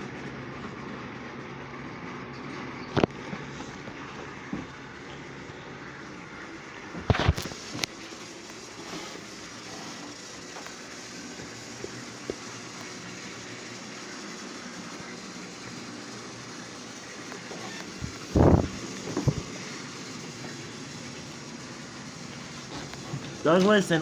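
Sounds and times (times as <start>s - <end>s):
toy train motor whirring: 7.1s - 24.0s.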